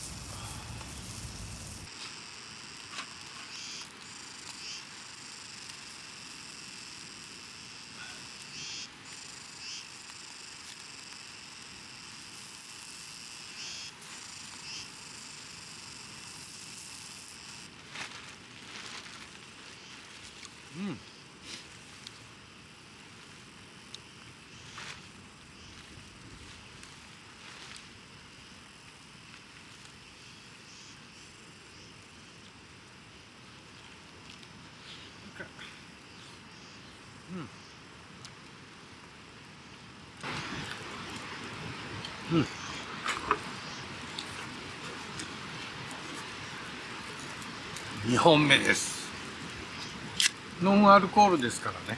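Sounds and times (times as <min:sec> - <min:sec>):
even hiss: 0:00.0 - 0:17.7, 0:40.2 - 0:51.9
insects chirring: 0:00.0 - 0:51.9.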